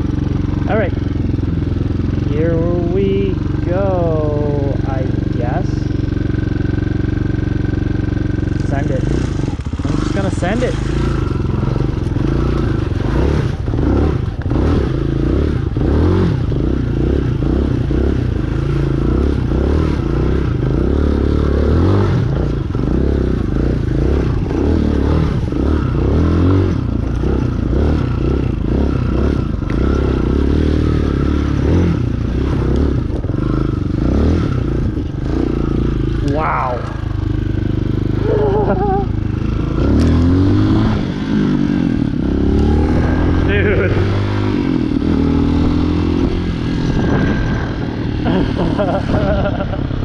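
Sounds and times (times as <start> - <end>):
dirt bike engine revving: 0.0 - 50.0
bike clattering and scraping: 7.6 - 15.1.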